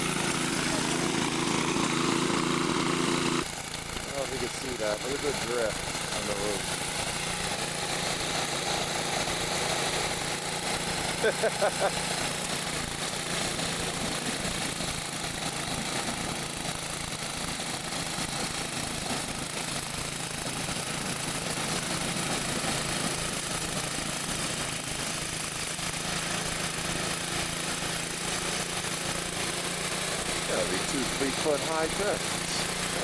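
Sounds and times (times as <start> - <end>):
mechanical hum over hiss: 0.0 - 15.9, 27.5 - 33.0.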